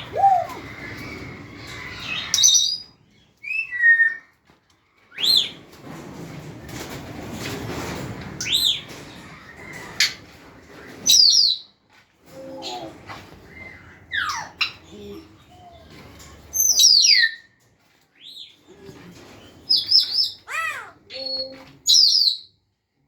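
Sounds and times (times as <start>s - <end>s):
parrots whistling: 0.0s - 2.8s
rustling: 0.0s - 16.8s.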